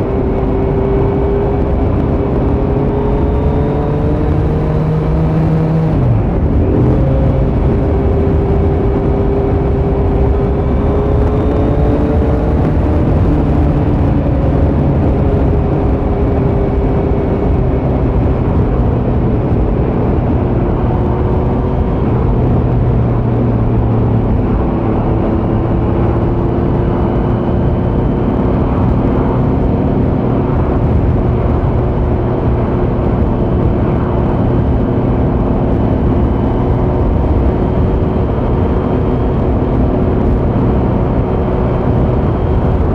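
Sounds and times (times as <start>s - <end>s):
motorcycle engine cruising: 0.0s - 42.9s.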